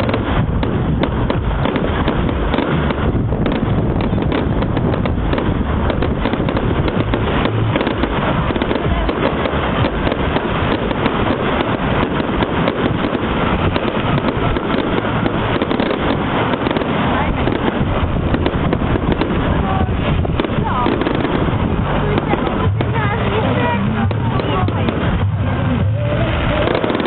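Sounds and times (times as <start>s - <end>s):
fireworks crackling bangs: 0.0s - 27.0s.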